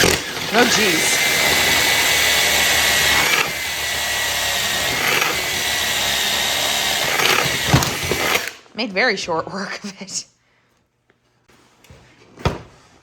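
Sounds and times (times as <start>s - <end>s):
cordless power tool whining: 0.0s - 8.7s.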